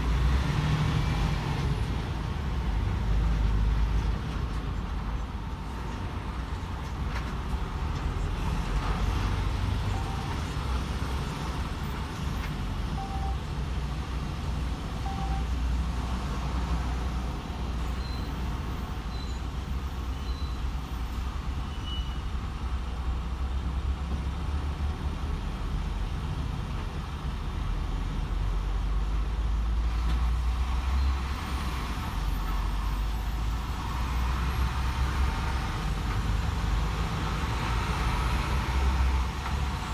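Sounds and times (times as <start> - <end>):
road and tyre noise: 0.0 - 39.9
faint short beeps: 9.9 - 10.4, 13.0 - 13.4, 15.1 - 15.6, 17.9 - 18.4, 19.1 - 19.4, 20.2 - 20.7, 21.7 - 22.2
lorry diesel engine drone: 12.7 - 18.0.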